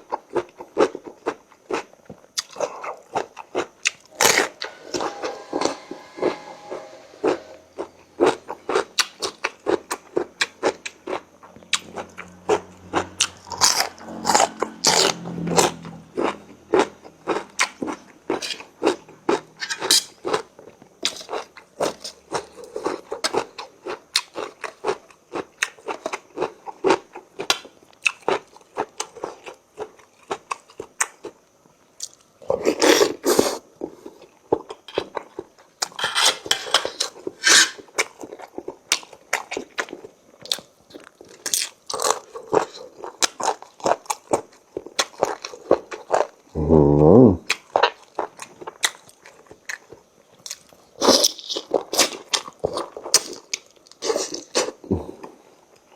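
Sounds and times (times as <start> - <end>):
person chewing and crunching food: 0.0 - 4.6, 7.8 - 46.6, 47.4 - 55.9.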